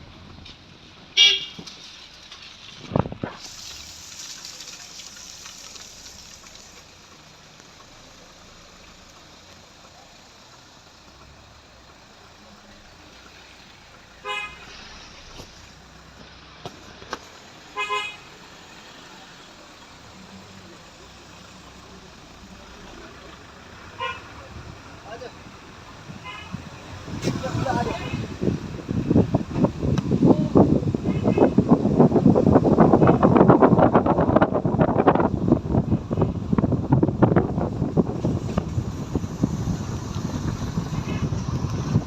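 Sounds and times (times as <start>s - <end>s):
road and engine noise: 0.0s - 42.0s
vehicle horn tooting: 1.2s - 1.7s, 14.2s - 14.7s, 17.8s - 18.3s, 24.0s - 24.4s, 26.2s - 26.6s, 27.2s - 28.4s, 31.0s - 31.6s.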